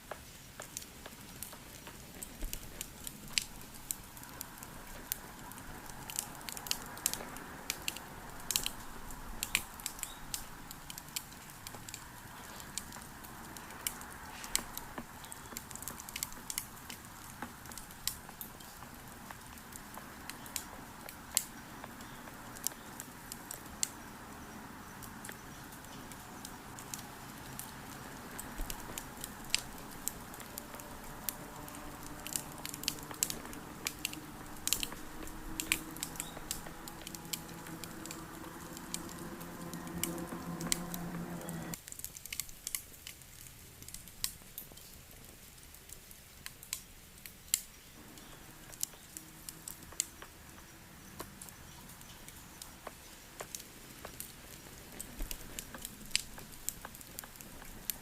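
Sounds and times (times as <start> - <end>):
campfire crackling: 0.0 - 58.0
low background hum: 21.6 - 41.8.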